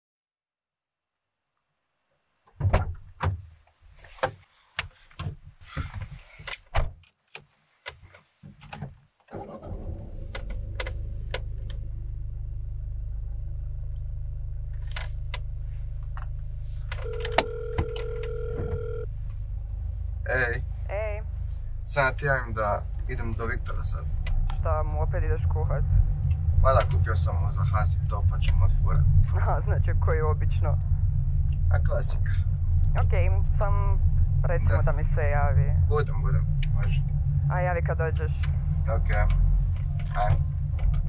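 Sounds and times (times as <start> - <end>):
clicks and knocks in car cabin: 2.5 - 9.1
car engine starting and idling: 9.3 - 41.0
phone ringback tone: 17.0 - 19.1.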